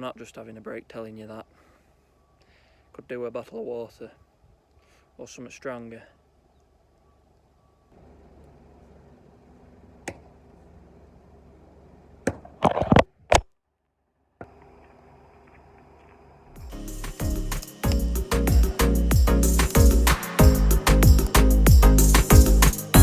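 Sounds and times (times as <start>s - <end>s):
axe chopping wood: 12.2s - 12.6s
electronic music with kick drum: 16.6s - 23.0s.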